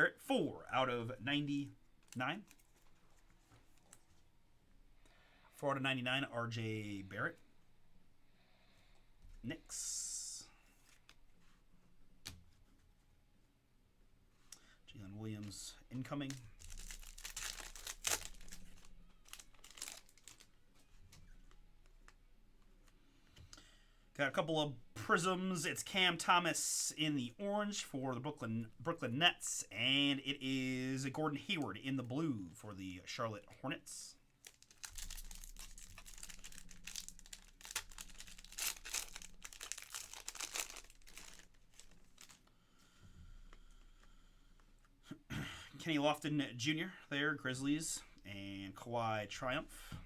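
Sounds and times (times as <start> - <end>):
cards rustling: 2.0 - 4.2, 15.4 - 23.0, 34.4 - 42.5
foil pack crinkling: 16.2 - 20.6, 34.4 - 42.5.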